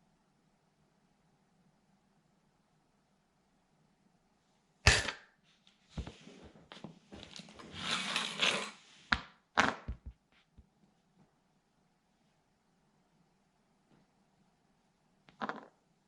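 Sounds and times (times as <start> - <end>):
plastic crackling and grinding on floor: 7.1 - 8.8.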